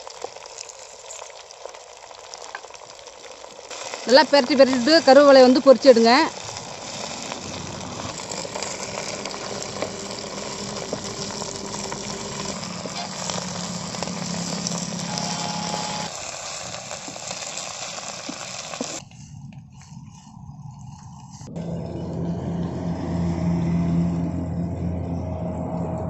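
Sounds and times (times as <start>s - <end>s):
leaves sizzling in hot oil: 0.0s - 19.0s
wooden spatula stirring pot: 6.4s - 15.1s.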